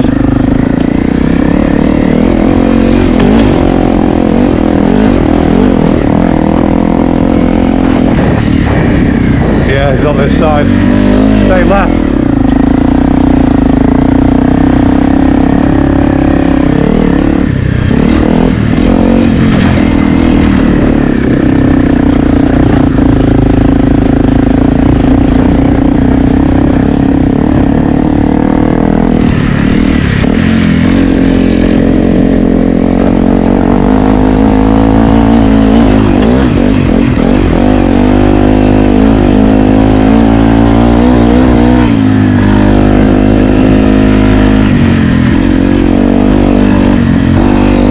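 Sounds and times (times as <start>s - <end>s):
motorcycle engine under load: 0.0s - 47.9s.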